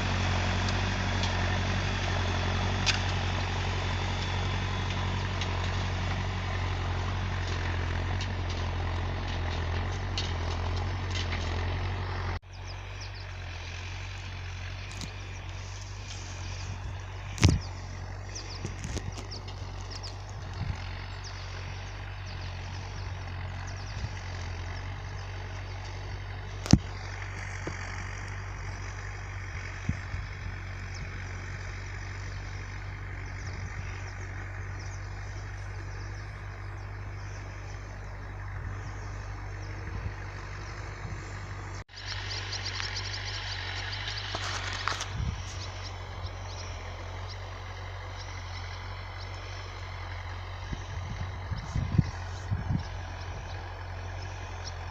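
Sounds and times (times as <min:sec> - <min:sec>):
backhoe diesel engine running: 0:00.0 - 0:54.9
wind noise on microphone: 0:16.8 - 0:17.7, 0:45.1 - 0:45.5, 0:50.7 - 0:53.0.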